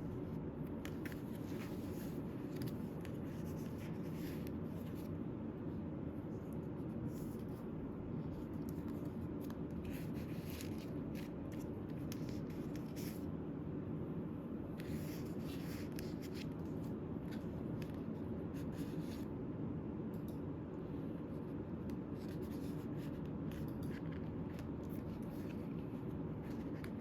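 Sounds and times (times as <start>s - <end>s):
paper rustling and sliding: 0.8s - 5.1s, 8.4s - 13.2s.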